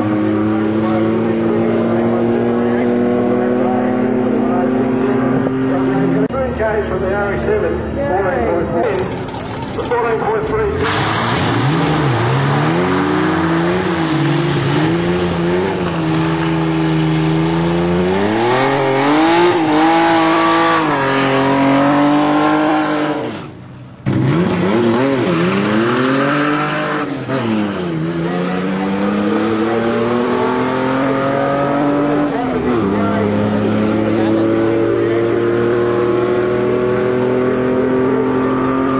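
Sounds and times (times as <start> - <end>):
racing car engines revving: 0.0 - 38.9.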